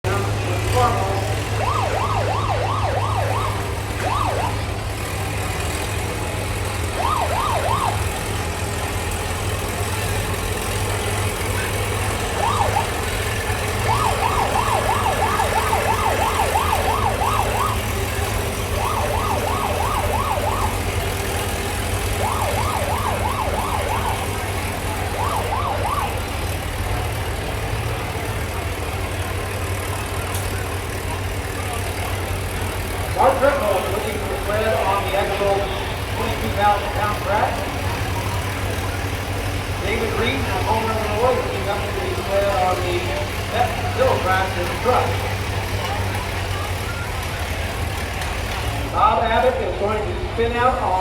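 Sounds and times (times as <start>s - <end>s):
low engine hum: 0.0s - 51.0s
siren yelping: 0.8s - 5.0s, 6.8s - 8.5s, 11.6s - 26.5s.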